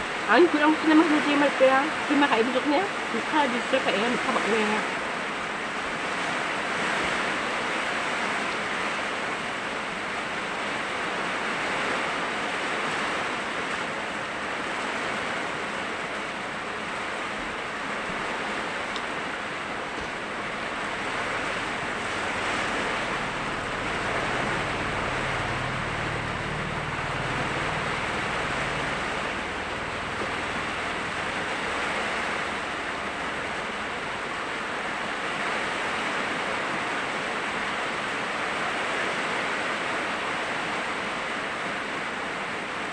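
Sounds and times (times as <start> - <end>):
heavy rain pouring: 0.0 - 42.9
faint low hum: 19.8 - 35.6.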